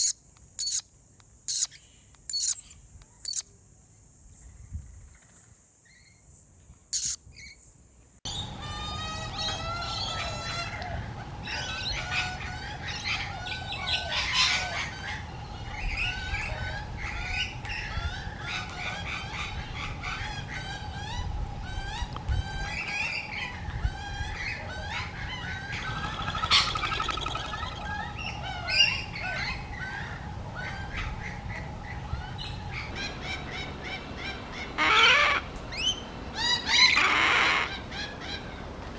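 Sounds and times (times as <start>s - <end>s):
baby birds chirping: 0.0s - 0.8s, 1.5s - 3.5s, 7.0s - 7.2s.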